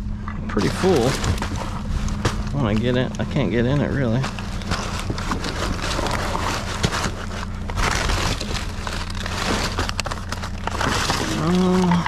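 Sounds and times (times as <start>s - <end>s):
debris clicking: 0.5s - 12.0s
plastic and paper crinkling: 0.5s - 12.0s.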